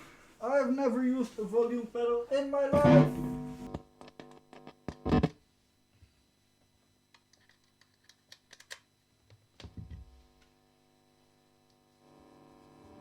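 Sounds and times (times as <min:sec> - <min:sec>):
electric guitar chords ringing: 0:02.7 - 0:05.3.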